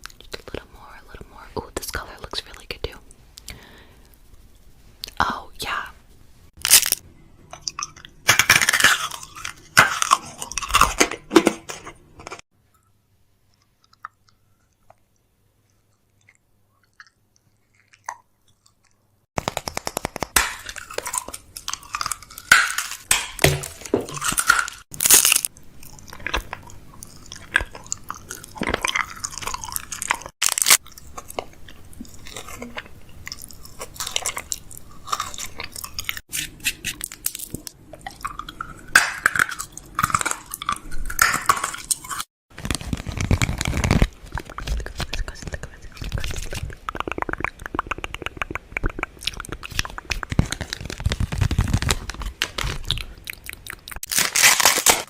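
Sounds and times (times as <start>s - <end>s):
plastic packaging crinkling: 6.6s - 7.0s, 19.4s - 31.5s, 41.2s - 46.7s, 49.6s - 53.2s, 53.8s - 55.0s.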